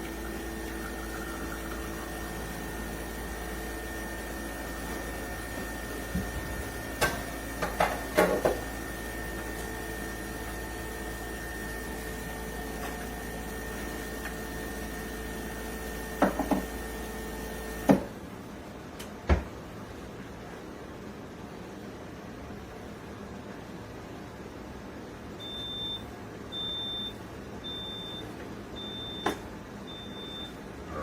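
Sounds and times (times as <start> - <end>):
espresso machine pump humming: 0.0 - 18.1.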